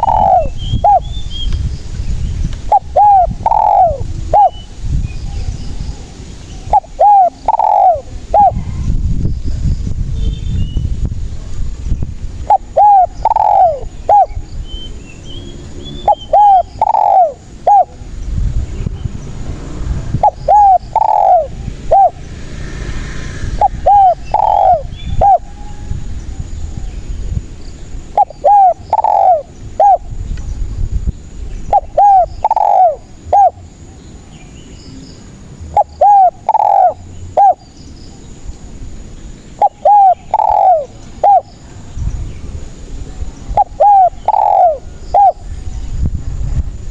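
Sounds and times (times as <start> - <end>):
dove cooing: 0.0 - 1.2, 2.7 - 4.7, 6.6 - 8.8, 12.4 - 14.4, 16.0 - 18.1, 20.2 - 22.2, 23.5 - 25.8, 28.0 - 30.1, 31.7 - 33.8, 35.7 - 37.6, 39.5 - 41.6, 43.5 - 45.6.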